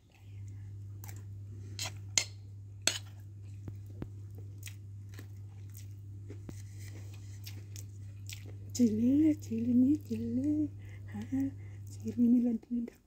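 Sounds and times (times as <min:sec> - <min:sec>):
steady low hum: 0:00.0 - 0:13.0
chewing and mouth smacks: 0:03.6 - 0:08.8.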